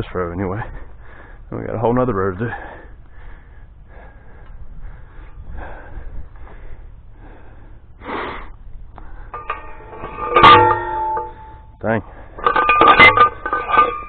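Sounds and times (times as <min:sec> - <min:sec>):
person breathing hard: 0:00.7 - 0:01.5, 0:02.6 - 0:09.4
post driver clanging on metal post: 0:09.3 - 0:11.8, 0:12.4 - 0:14.0.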